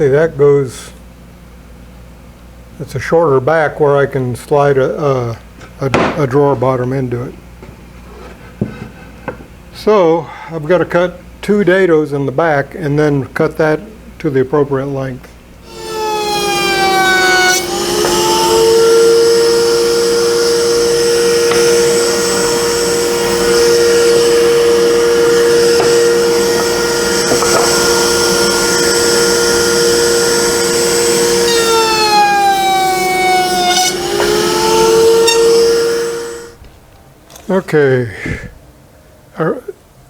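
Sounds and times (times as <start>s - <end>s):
power tool motor whine: 15.6s - 36.6s.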